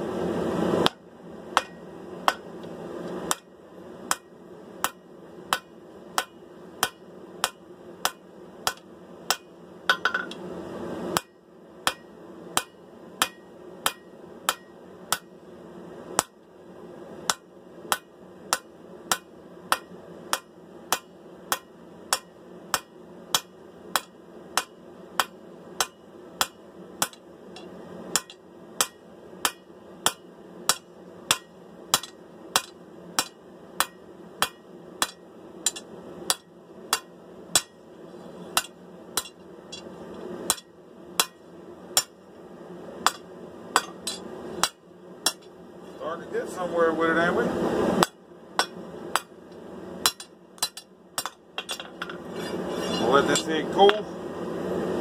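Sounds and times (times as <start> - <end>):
steady background noise: 0.0 - 55.0
hammer striking steel on anvil: 1.6 - 2.5, 3.3 - 3.5, 4.1 - 10.4, 11.2 - 15.4, 16.2 - 16.4, 17.3 - 37.8, 38.5 - 39.9, 40.5 - 41.4, 42.0 - 42.2, 43.0 - 45.5, 48.0 - 49.3, 50.0 - 54.0.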